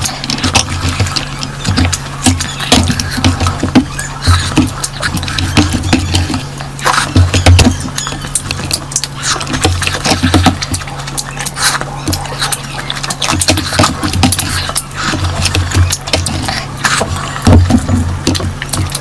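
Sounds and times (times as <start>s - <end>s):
steady low hum: 0.0s - 19.0s
wet chewing and lip smacking: 0.0s - 19.0s.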